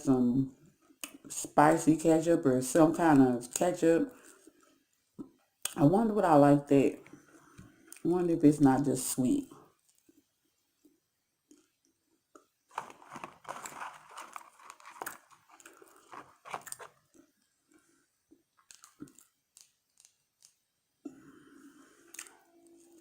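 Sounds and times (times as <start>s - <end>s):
crunchy chewing of fries: 12.4s - 20.7s, 21.8s - 23.0s.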